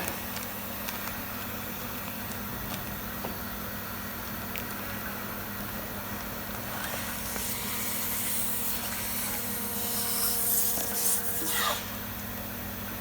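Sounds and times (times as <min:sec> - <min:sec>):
air hissing: 0:06.7 - 0:12.0.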